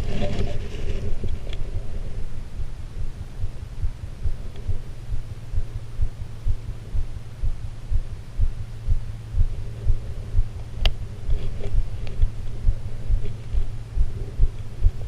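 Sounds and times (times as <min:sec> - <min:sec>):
low thumping rumble: 0:00.0 - 0:15.0.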